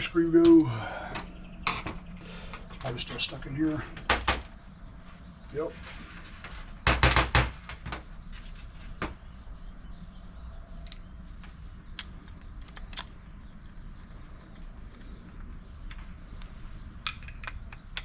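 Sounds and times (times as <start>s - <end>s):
tools clicking and tapping: 17.1s - 18.0s.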